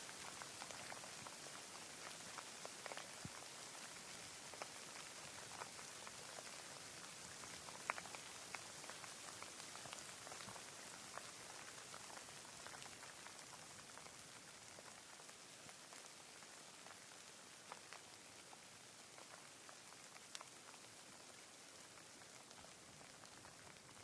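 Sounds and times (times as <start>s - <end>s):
raindrops ticking on a surface: 0.0s - 24.0s.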